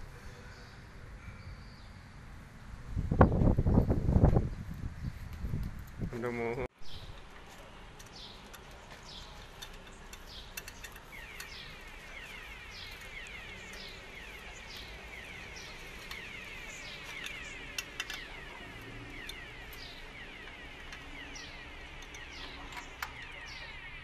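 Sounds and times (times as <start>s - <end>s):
sharp clicks: 8.0s - 23.6s.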